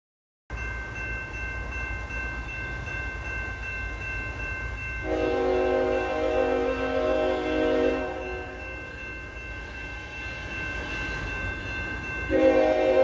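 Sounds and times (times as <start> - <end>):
steady high-pitched tones: 0.5 - 13.0
locomotive air horn: 5.0 - 8.6, 12.3 - 13.0.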